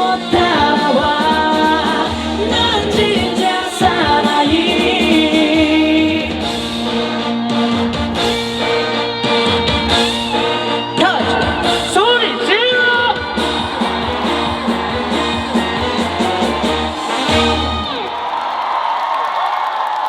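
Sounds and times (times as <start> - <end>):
person singing: 0.0 - 6.7
live band music: 0.0 - 18.1.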